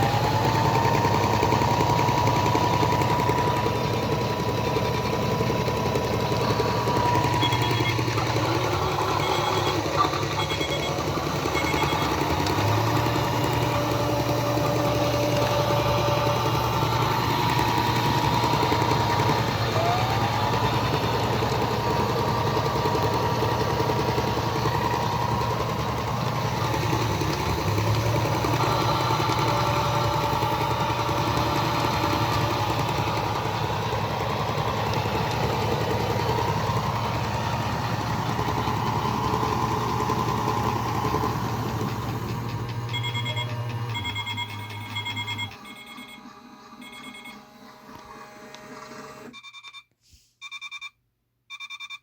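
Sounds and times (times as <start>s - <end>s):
washing machine running: 0.0s - 49.4s
short electronic beeps: 7.3s - 8.2s, 9.0s - 12.2s, 42.9s - 46.2s, 46.8s - 47.4s, 49.3s - 52.0s.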